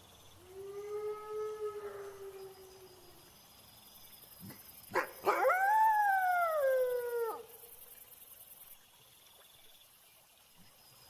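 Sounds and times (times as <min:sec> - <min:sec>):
crickets chirring: 0:00.0 - 0:11.0
wolf howling: 0:00.5 - 0:03.2, 0:05.2 - 0:07.5.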